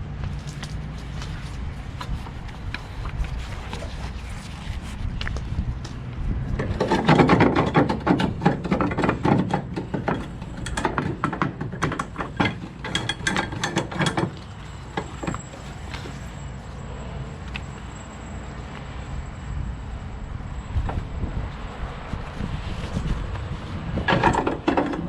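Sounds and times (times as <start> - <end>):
metallic rattling and clicking: 6.6 - 15.7.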